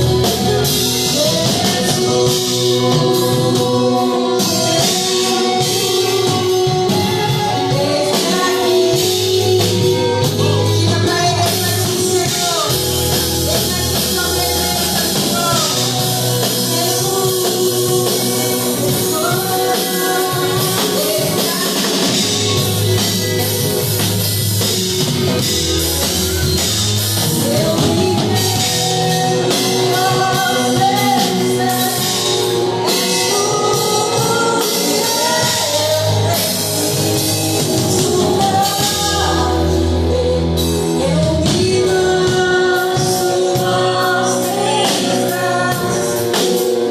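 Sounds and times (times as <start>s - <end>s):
band with drums and guitar: 0.0s - 46.9s
gospel singing: 0.0s - 46.9s.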